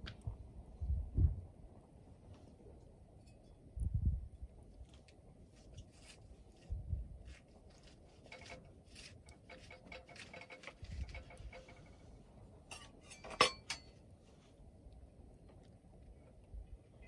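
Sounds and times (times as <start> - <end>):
wood fire crackling: 4.3 - 16.4.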